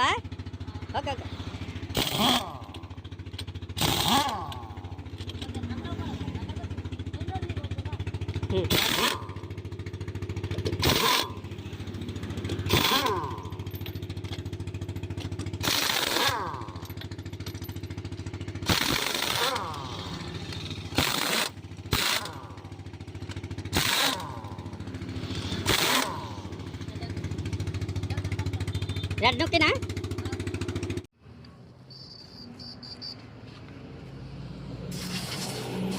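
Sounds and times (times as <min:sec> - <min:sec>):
engine or compressor drone: 0:00.0 - 0:31.4, 0:32.2 - 0:35.9
air tool bursts: 0:01.9 - 0:02.8, 0:03.8 - 0:04.6, 0:08.7 - 0:09.3, 0:10.8 - 0:11.4, 0:12.7 - 0:13.3, 0:15.6 - 0:16.6, 0:18.6 - 0:22.4, 0:23.7 - 0:24.5, 0:25.2 - 0:26.5, 0:34.9 - 0:35.9.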